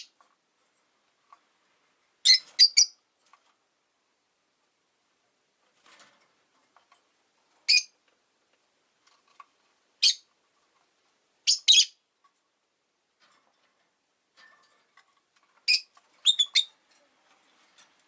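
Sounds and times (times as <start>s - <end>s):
lovebirds shrill chirps: 2.2s - 3.0s, 7.7s - 7.9s, 10.0s - 10.3s, 11.5s - 12.0s, 15.7s - 16.8s.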